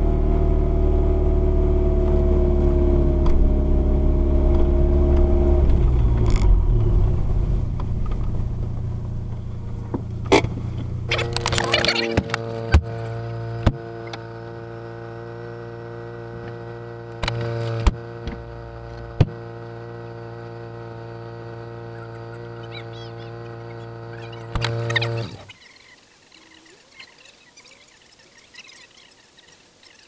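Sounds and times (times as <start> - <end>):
car engine idling: 0.0 - 25.5
sharp clicks: 24.5 - 25.4.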